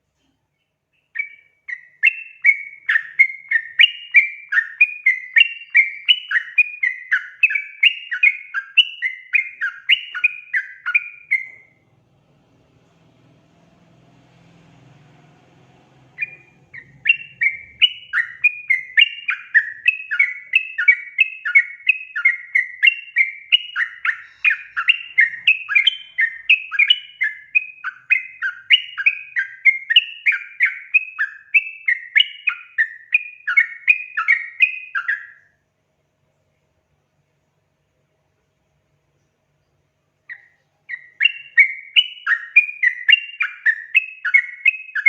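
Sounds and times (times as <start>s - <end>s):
bird singing downward-slurred notes: 1.0s - 35.5s.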